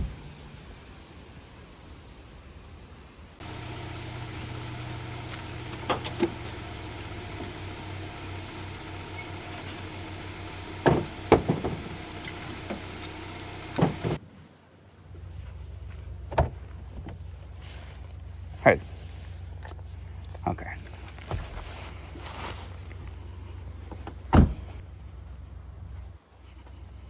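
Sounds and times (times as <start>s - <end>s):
knocks and clunks: 3.4s - 14.2s
lower steady hum: 3.4s - 14.2s
motor hum: 3.4s - 14.2s.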